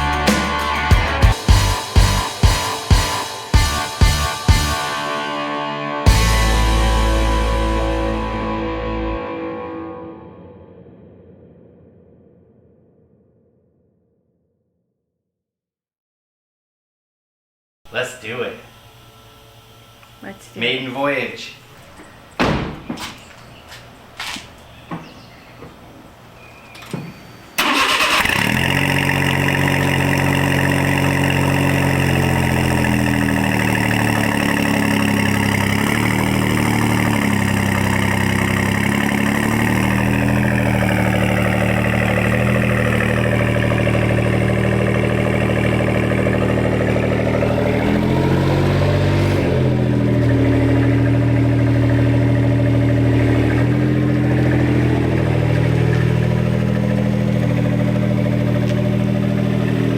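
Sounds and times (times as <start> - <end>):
truck engine starting and idling: 0.0 - 9.2, 26.2 - 59.9.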